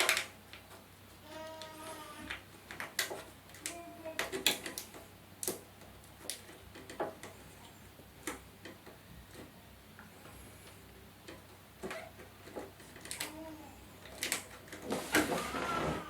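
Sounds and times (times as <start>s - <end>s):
hard plastic parts clicking: 2.2s - 7.4s.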